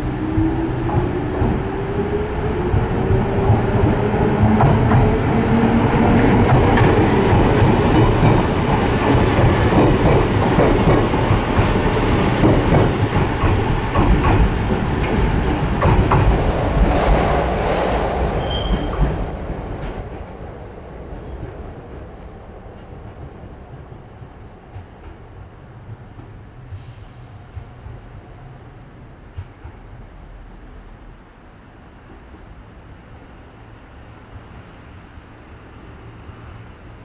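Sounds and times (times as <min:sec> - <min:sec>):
train wheels clattering over rail joints: 0:06.0 - 0:17.0.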